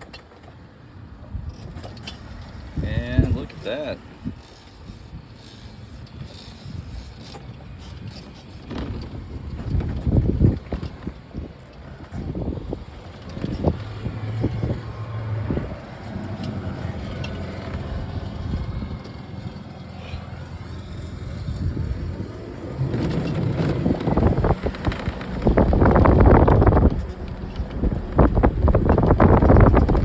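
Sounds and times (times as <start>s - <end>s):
wind buffeting microphone: 1.0s - 30.0s
car engine running: 12.3s - 30.0s.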